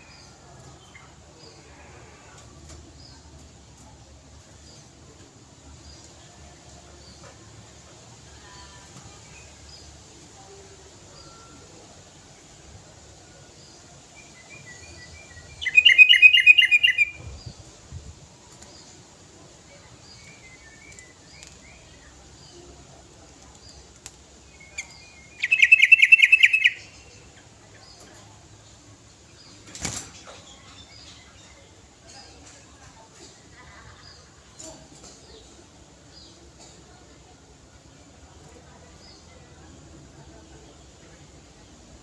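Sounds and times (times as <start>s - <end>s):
bird singing rapid notes: 14.7s - 17.2s, 24.6s - 27.1s
soft bird chirps: 23.4s - 28.8s.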